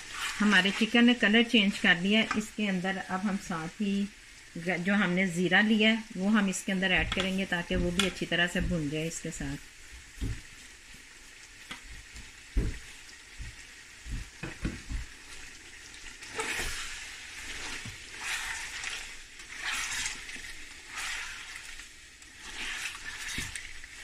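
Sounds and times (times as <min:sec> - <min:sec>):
spatula scraping pan: 0:00.0 - 0:01.0, 0:16.2 - 0:24.0
meat sizzling in hot oil: 0:00.0 - 0:24.0.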